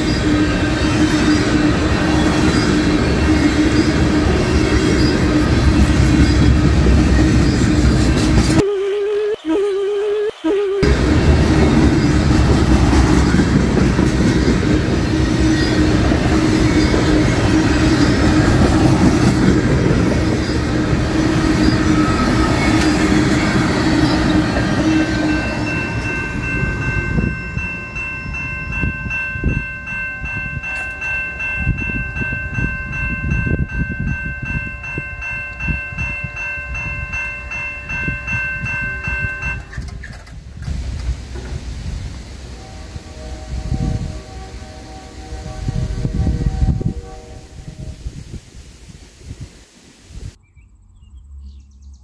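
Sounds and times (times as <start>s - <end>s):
train rumbling past: 0.0s - 8.6s, 10.8s - 50.4s
high multi-toned ringing: 21.8s - 39.8s.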